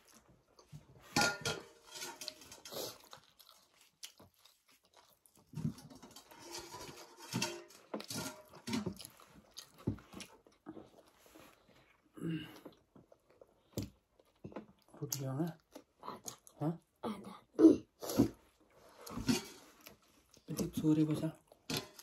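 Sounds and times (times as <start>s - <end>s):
people chewing: 0.0s - 1.1s, 1.8s - 16.8s.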